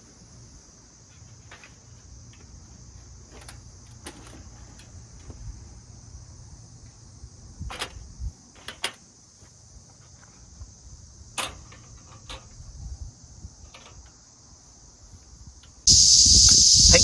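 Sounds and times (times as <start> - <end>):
insects chirring: 15.9 - 17.0.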